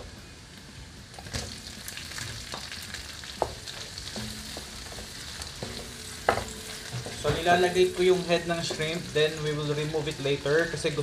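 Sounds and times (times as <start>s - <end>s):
food sizzling in a pan: 0.4s - 11.0s
spatula knocking against pan: 3.4s - 8.9s.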